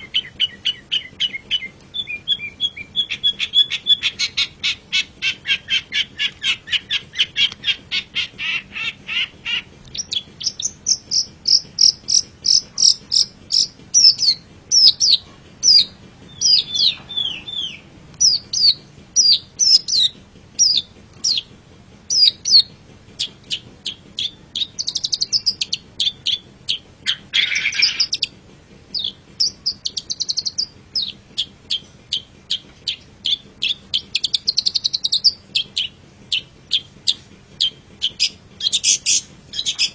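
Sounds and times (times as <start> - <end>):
bird chattering: 0.0 - 21.5, 22.1 - 28.3, 28.9 - 39.9
bird whistled notes: 10.0 - 21.5, 23.5 - 28.3.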